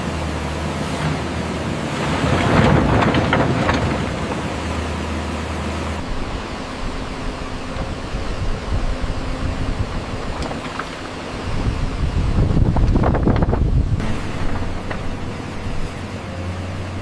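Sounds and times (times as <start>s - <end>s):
excavator engine running: 0.0s - 17.0s
scraping and rattling: 1.8s - 6.0s.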